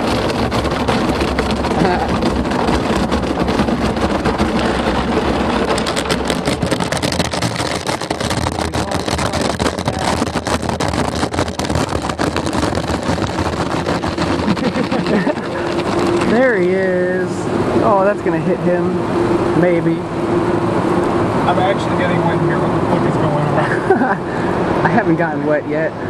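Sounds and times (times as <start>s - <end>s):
fast irregular slapping: 0.0s - 16.9s
car wash water spraying: 0.0s - 26.0s.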